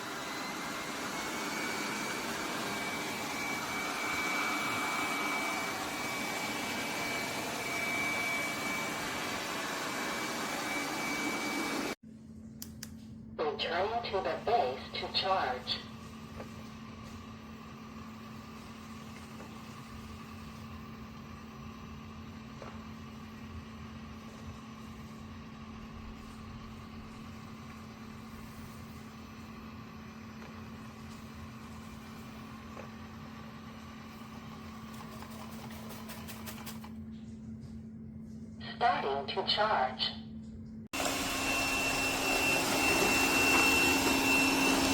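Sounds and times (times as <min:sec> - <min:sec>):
robot vacuum motor hum: 0:00.0 - 0:12.0, 0:41.0 - 0:44.9
faint motor whine: 0:00.0 - 0:12.4, 0:13.7 - 0:39.2, 0:40.3 - 0:44.9.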